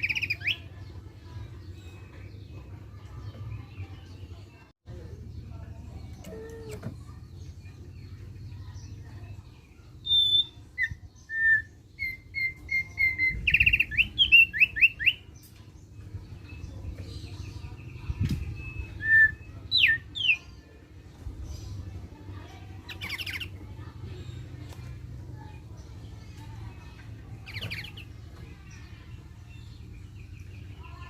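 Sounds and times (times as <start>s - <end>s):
bird singing whistled notes: 10.0s - 15.3s, 18.2s - 20.4s.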